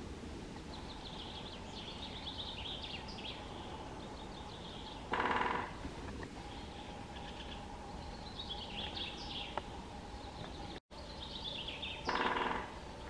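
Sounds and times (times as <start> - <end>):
forest ambience: 0.0 - 13.0
songbird trilling: 6.4 - 9.6, 10.2 - 12.8
harsh bird call: 11.7 - 12.8.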